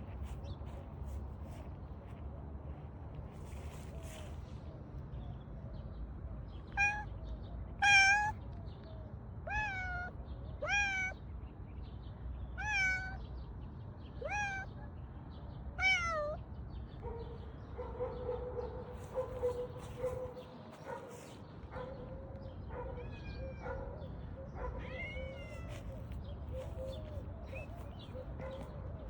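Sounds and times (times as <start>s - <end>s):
cat meowing: 6.7s - 7.1s, 7.8s - 8.4s, 9.5s - 11.2s, 12.6s - 13.2s, 14.2s - 14.7s, 15.8s - 16.4s, 23.0s - 23.8s, 24.7s - 26.0s.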